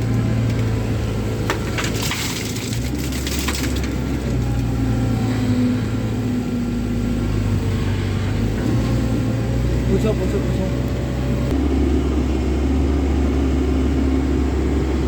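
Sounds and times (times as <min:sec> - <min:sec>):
rock and soil crunching: 0:00.0 - 0:04.8
excavator diesel engine running: 0:00.0 - 0:15.0.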